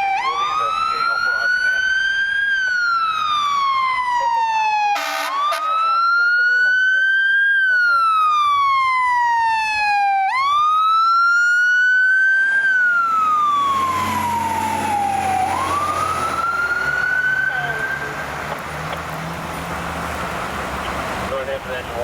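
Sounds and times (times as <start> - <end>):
fire truck siren wailing: 0.0 - 22.0
truck engine and road noise: 0.0 - 22.0.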